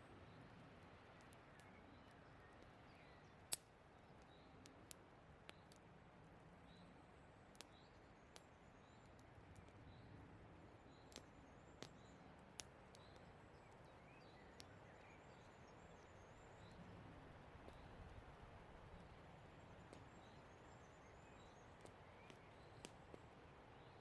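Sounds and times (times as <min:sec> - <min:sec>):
campfire crackling and popping: 0:10.5 - 0:13.8, 0:21.7 - 0:23.4.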